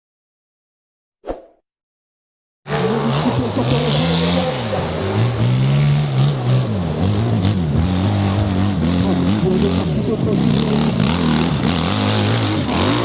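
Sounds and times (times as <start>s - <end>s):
dirt bike engine revving: 2.7s - 13.0s.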